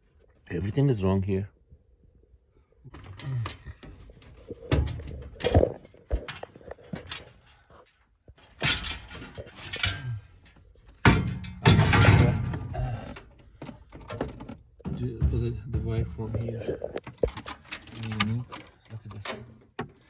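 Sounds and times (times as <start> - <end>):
knocks and thuds of handling: 3.0 - 7.3, 11.0 - 20.0.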